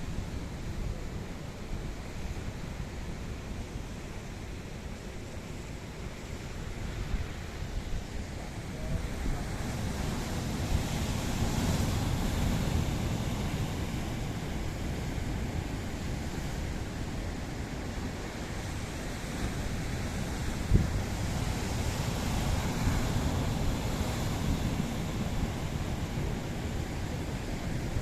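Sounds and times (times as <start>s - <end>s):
surf washing onto beach: 5.6s - 28.0s
wind on microphone: 7.1s - 28.0s.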